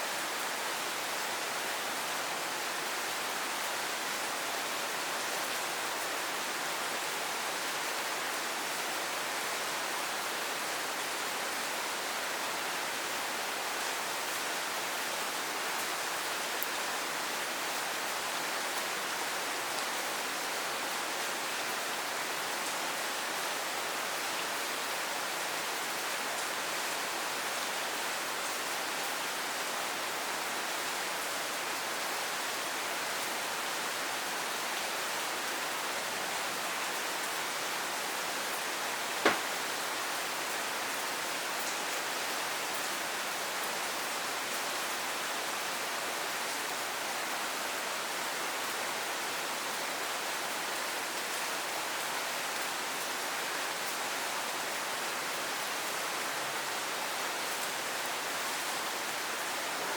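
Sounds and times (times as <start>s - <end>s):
steady rain: 0.0s - 59.9s
sharp knock: 39.2s - 39.6s.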